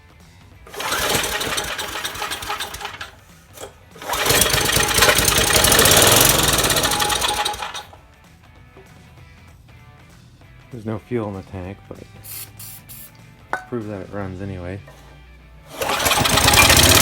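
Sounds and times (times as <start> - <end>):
small engine firing and running: 0.7 - 8.0, 15.7 - 17.0.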